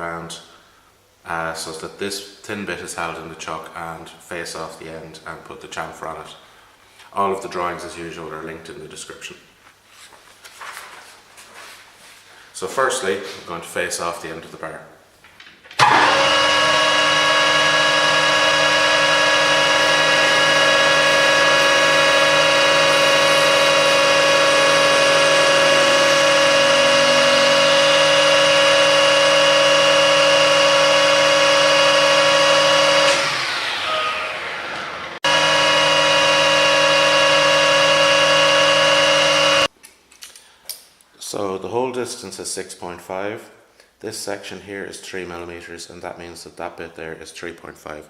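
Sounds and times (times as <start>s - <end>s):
metal lathe whining: 15.8s - 39.7s.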